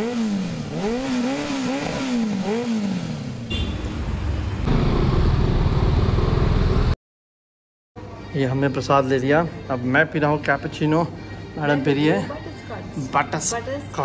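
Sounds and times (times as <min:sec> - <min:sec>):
motorcycle engine revving: 0:00.0 - 0:07.0
low rumble of riding noise: 0:02.3 - 0:07.0.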